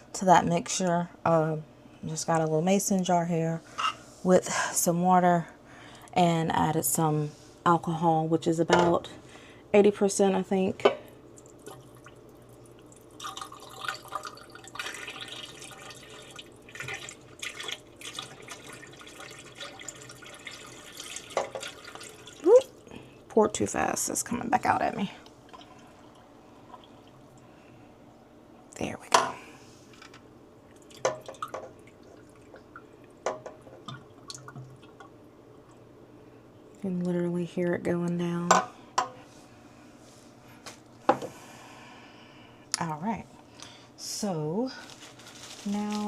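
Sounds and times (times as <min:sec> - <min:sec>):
liquid pouring and splashing: 0:11.4 - 0:23.1, 0:25.4 - 0:27.4, 0:30.7 - 0:35.2.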